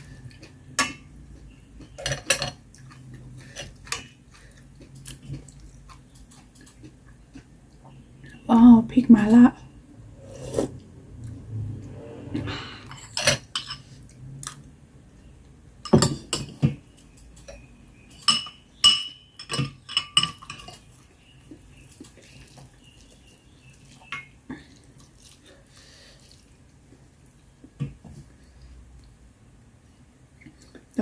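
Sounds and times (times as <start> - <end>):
utensils clinking against dishes: 12.9 - 14.0, 15.8 - 21.0.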